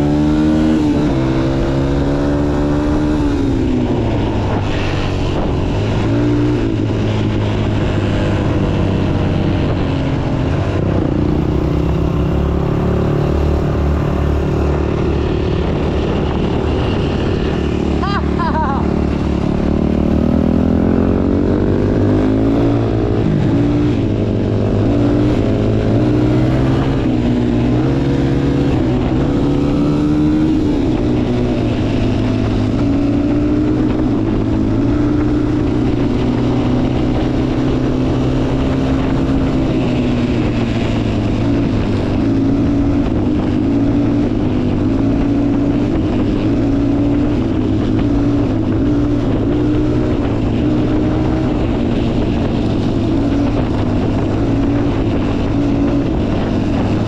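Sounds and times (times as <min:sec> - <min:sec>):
motorcycle engine running: 0:00.0 - 0:57.0
wind noise: 0:00.0 - 0:57.0.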